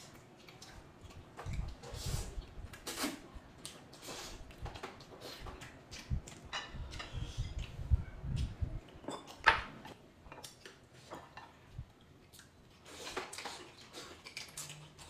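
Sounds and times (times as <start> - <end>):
tableware clinking: 9.0 - 9.7.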